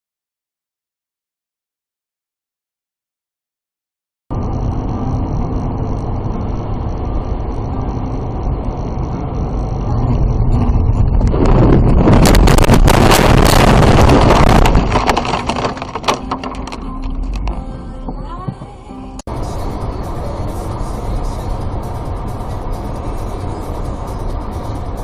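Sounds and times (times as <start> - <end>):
car road and engine noise: 4.3 - 25.0
car collision crunching: 12.0 - 18.7.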